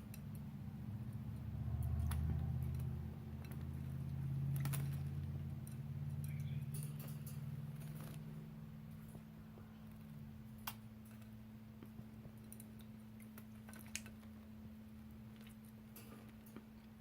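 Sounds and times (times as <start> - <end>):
steady low hum: 0.0 - 17.0
faint bird chirp: 6.1 - 7.5.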